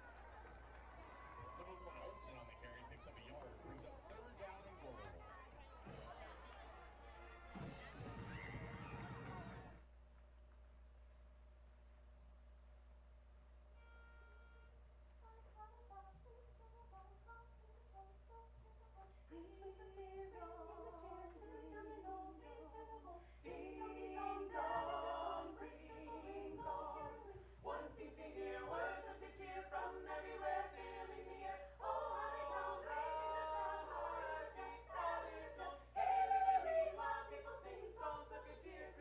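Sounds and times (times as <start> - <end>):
group singing a cappella: 18.3 - 39.0.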